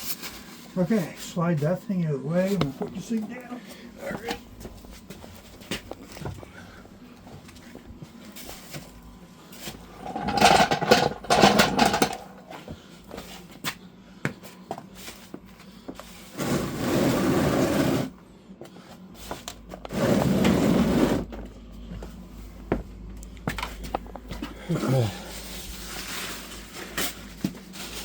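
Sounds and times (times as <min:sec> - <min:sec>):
gear scraping across floor: 0:09.6 - 0:12.4, 0:16.1 - 0:18.2, 0:19.2 - 0:21.4.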